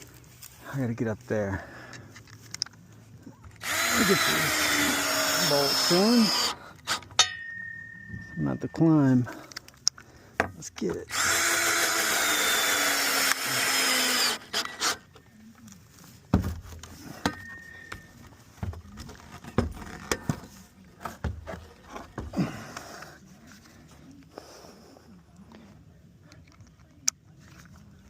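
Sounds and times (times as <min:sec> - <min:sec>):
power drill driving a bolt: 0:03.6 - 0:07.0, 0:11.1 - 0:15.0
knocks and clunks: 0:16.3 - 0:22.6.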